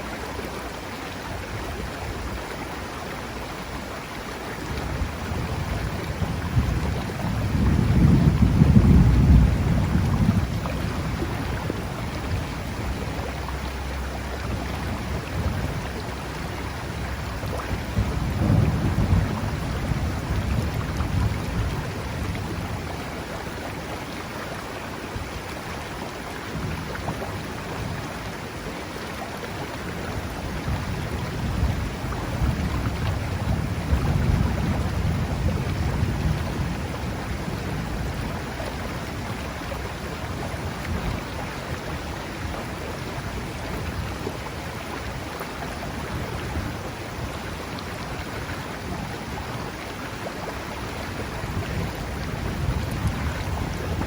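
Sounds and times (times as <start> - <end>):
steady rain hiss: 0.0 - 54.0
low thunder rumbling: 4.8 - 23.0, 30.2 - 41.2.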